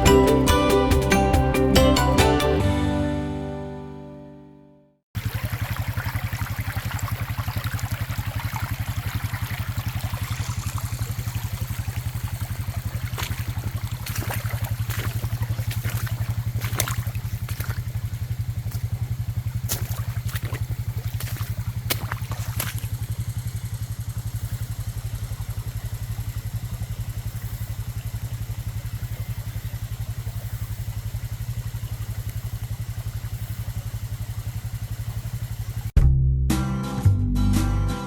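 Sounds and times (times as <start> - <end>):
creek water rushing: 5.2 - 35.9
small splashes and clicks: 5.2 - 35.9
fast low throb: 9.6 - 36.6.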